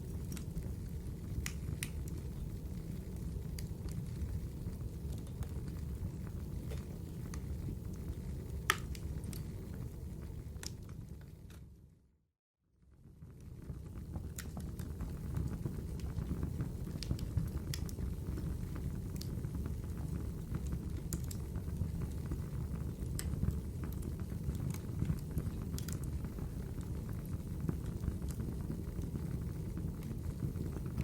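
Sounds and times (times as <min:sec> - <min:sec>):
wood fire crackling: 0:00.0 - 0:11.8, 0:13.1 - 0:31.0
sharp pops and snaps: 0:01.4 - 0:02.1, 0:08.6 - 0:09.4.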